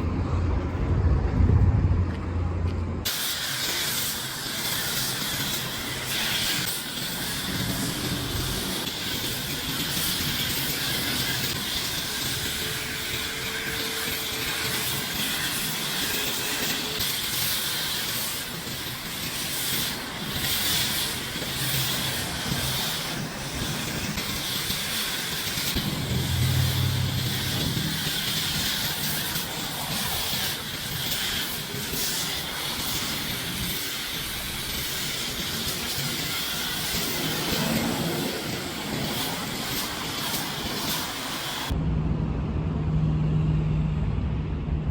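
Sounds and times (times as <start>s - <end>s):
pressure washer spraying water: 3.0s - 41.7s
low hum: 25.8s - 29.1s.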